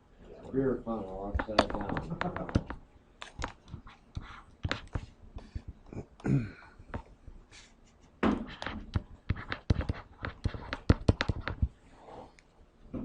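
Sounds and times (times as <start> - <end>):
taps and scratches on a board: 1.3 - 5.8, 8.2 - 11.8.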